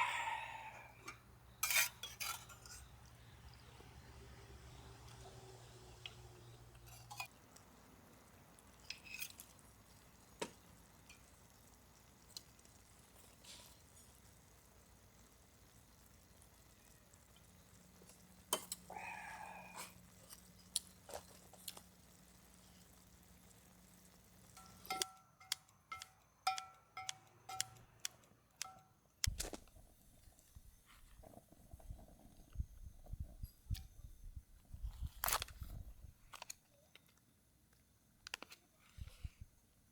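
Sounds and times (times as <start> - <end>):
dishes and utensils clinking: 1.0 - 3.1, 24.6 - 27.8
small metal object tapped: 24.6 - 28.9.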